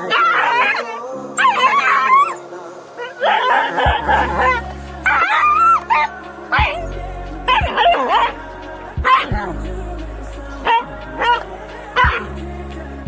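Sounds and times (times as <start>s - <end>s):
dog whimpering and yelping: 0.0s - 2.4s
background music with bass: 3.8s - 13.0s.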